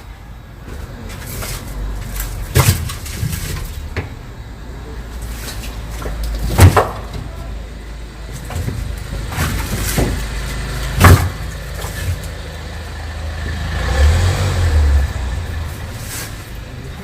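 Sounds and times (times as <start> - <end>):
vehicle low rumble: 0.0 - 17.0
sharp knocks and thumps: 2.4 - 4.2, 5.6 - 7.3, 8.3 - 12.3.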